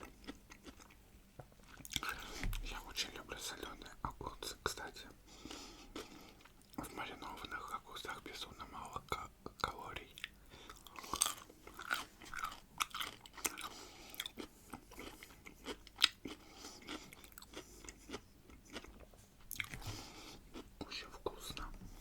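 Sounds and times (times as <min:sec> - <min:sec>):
crunchy chewing of pickles: 0:00.0 - 0:02.9, 0:05.4 - 0:07.8, 0:09.6 - 0:21.7.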